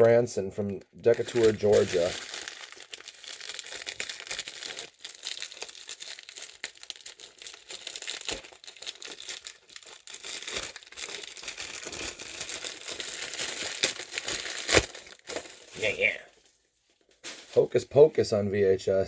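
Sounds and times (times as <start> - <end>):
packaging rustling and crinkling: 0.0 - 17.8
packaging tearing: 1.1 - 16.1.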